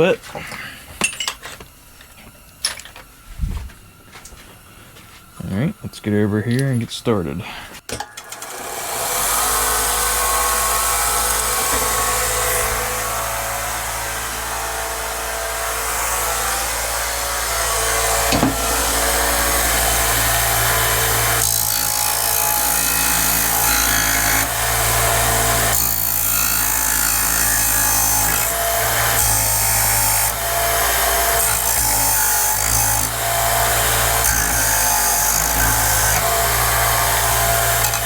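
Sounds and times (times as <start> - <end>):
electric drill boring into steel: 8.0 - 38.0.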